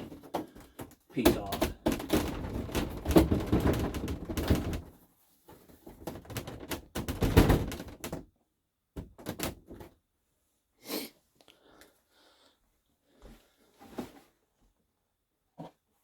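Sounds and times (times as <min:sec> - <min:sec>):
plastic trim panel rattling: 0:00.0 - 0:04.9.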